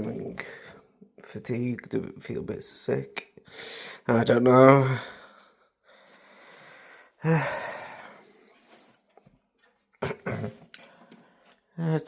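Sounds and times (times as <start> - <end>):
man breathing in: 3.5 - 4.0, 5.2 - 8.5
man sighing: 7.2 - 8.3.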